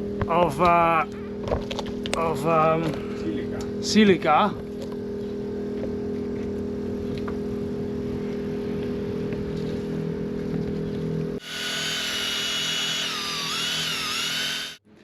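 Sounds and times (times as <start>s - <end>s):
power tool motor running: 11.4s - 14.8s.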